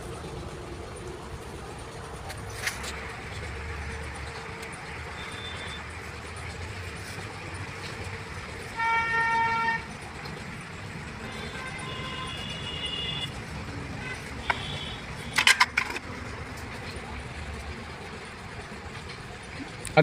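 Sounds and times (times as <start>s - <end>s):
vehicle horn toot: 8.7s - 10.0s, 11.2s - 13.4s, 14.0s - 15.5s.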